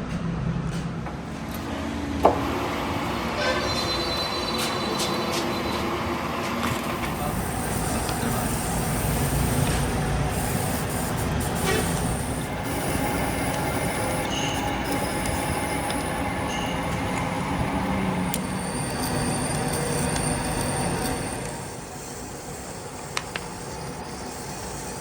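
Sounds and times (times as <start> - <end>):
metalworking machinery grinding: 0.0 - 25.0
short high squeals: 3.4 - 5.9.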